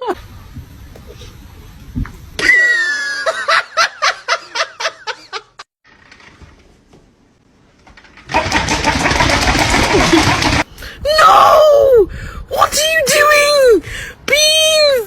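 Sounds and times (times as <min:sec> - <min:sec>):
rapid laughter: 0:08.3 - 0:10.7.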